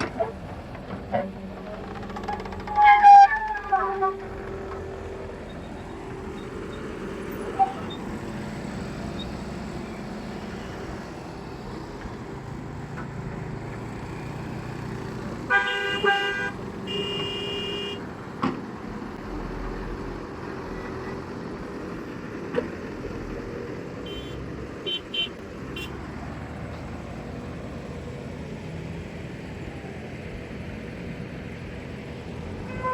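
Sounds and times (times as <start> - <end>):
engine hum: 0.0 - 32.9
vehicle horn honking: 15.5 - 18.0, 24.1 - 25.9.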